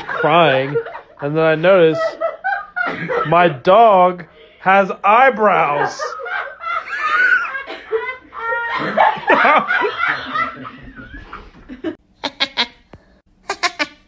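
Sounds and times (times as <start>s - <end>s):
person laughing hard: 0.0s - 3.5s, 5.7s - 12.6s.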